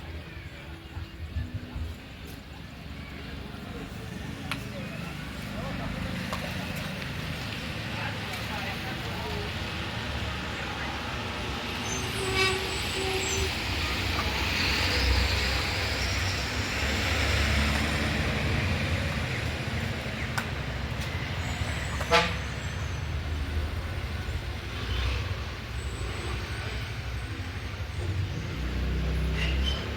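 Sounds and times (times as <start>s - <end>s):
road traffic: 0.0s - 29.9s
vehicle horn tooting: 12.1s - 13.6s, 22.0s - 22.6s
sharp brief squeak: 29.3s - 29.9s.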